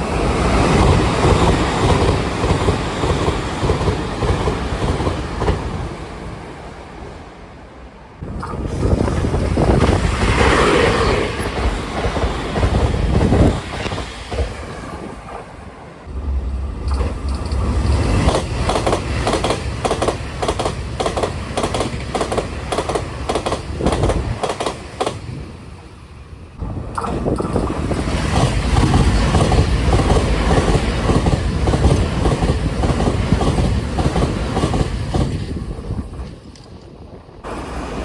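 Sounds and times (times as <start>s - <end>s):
train passing in a loud rush: 0.0s - 38.0s
train wheels clacking over rail joints: 0.4s - 5.8s, 16.6s - 25.4s, 26.8s - 37.0s.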